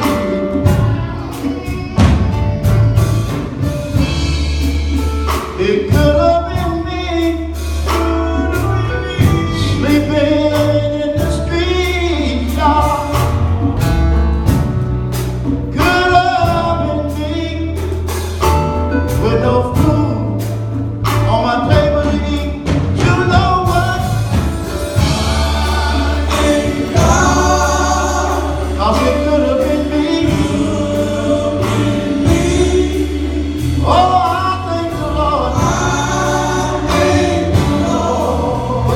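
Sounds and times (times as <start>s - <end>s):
band playing: 0.0s - 38.9s
bass line: 0.0s - 38.9s
drums: 0.0s - 38.9s
choir singing: 24.3s - 38.9s.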